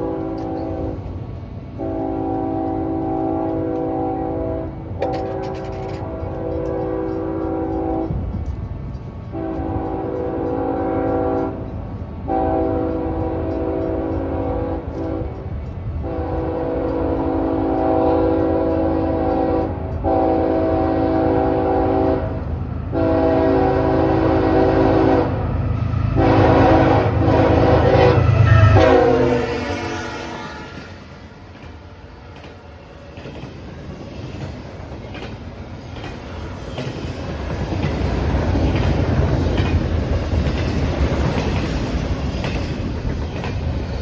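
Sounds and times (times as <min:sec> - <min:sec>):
locomotive air horn blasts: 0:00.0 - 0:01.0, 0:01.8 - 0:08.2, 0:09.3 - 0:11.7, 0:12.3 - 0:15.4, 0:16.0 - 0:31.2
train rumble: 0:00.0 - 0:44.0.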